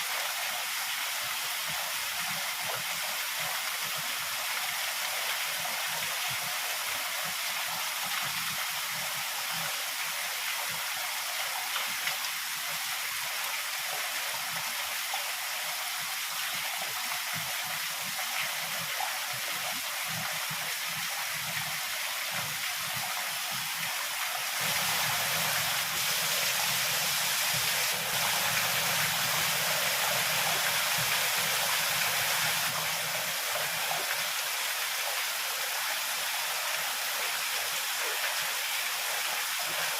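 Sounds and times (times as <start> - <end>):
heavy rain: 20.9 - 39.9.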